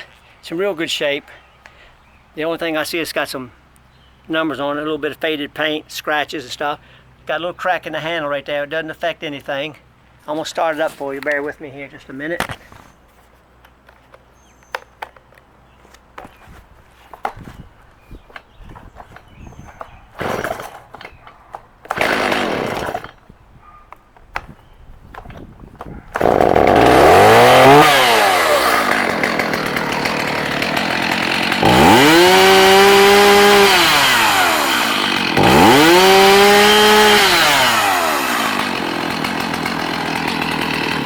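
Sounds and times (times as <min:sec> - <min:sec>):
handling noises: 0:10.2 - 0:22.1
chainsaw engine revving and idling: 0:20.2 - 0:21.0, 0:21.9 - 0:23.2, 0:26.1 - 0:41.0.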